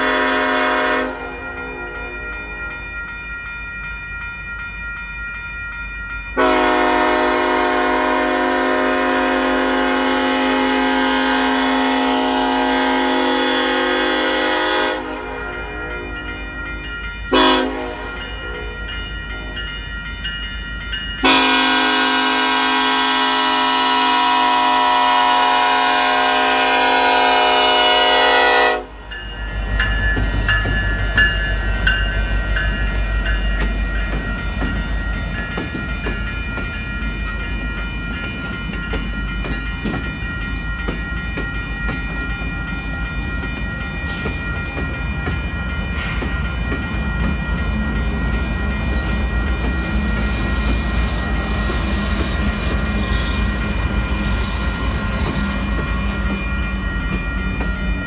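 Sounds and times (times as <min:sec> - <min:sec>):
locomotive horn chord: 0:00.0 - 0:01.4, 0:06.4 - 0:16.2, 0:17.3 - 0:18.8, 0:21.2 - 0:29.0
crossing bell ringing: 0:00.0 - 0:58.0.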